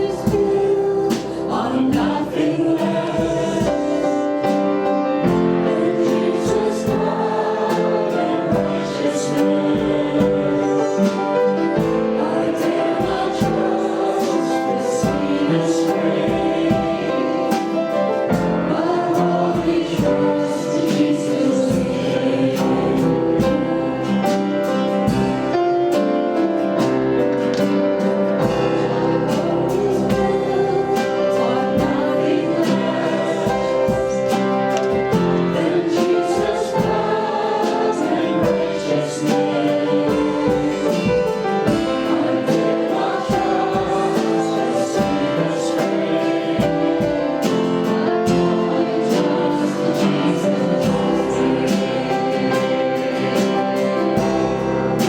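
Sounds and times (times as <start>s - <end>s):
group singing with instruments: 0.0s - 55.0s.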